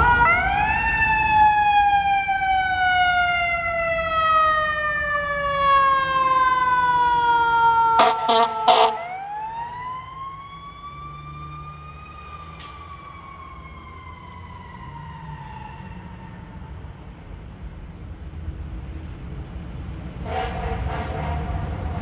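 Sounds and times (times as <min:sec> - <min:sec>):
truck engine rumble: 0:00.0 - 0:09.9, 0:11.0 - 0:22.0
siren winding down: 0:00.0 - 0:16.5.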